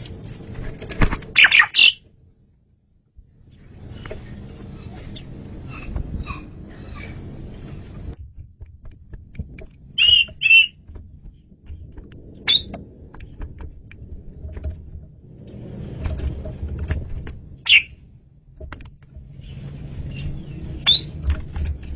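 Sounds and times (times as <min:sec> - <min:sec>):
starling calling: 0:00.0 - 0:00.5, 0:01.3 - 0:02.1, 0:03.5 - 0:08.2, 0:09.9 - 0:10.8, 0:12.4 - 0:12.8, 0:17.6 - 0:18.0, 0:19.3 - 0:21.7
low background rumble: 0:00.0 - 0:21.9.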